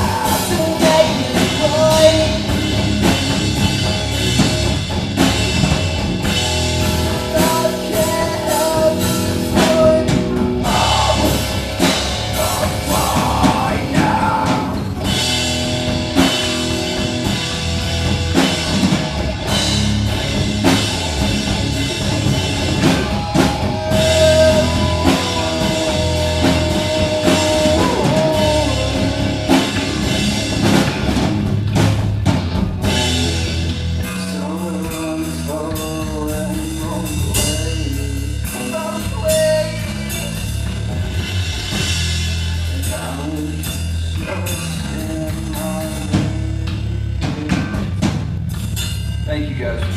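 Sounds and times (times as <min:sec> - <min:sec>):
person singing: 0:00.0 - 0:02.5, 0:06.8 - 0:15.1, 0:22.2 - 0:30.8
electric guitar: 0:00.0 - 0:48.8
bass guitar: 0:00.0 - 0:49.9
drum kit steady beat: 0:00.0 - 0:49.9.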